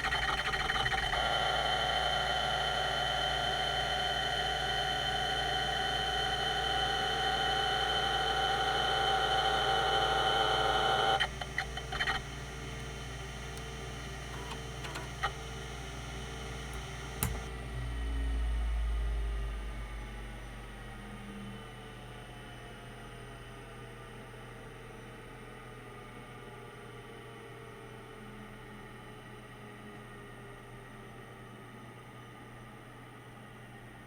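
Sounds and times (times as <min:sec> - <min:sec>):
hard disk drive whine: 0:00.0 - 0:34.0
clicks: 0:11.2 - 0:15.6, 0:16.6 - 0:17.5.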